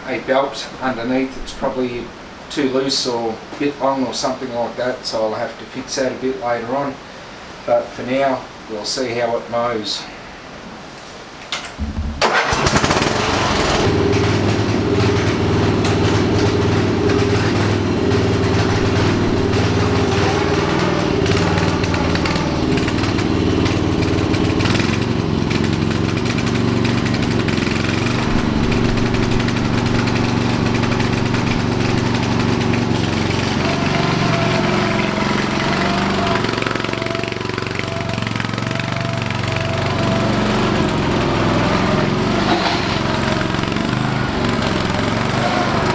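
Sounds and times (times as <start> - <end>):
ride-on lawn mower engine: 0.0 - 2.2, 11.8 - 45.9.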